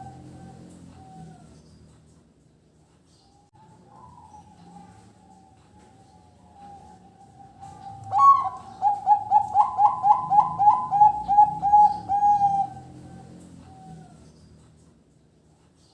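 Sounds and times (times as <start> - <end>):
dove cooing: 0.0 - 1.8, 3.6 - 14.5.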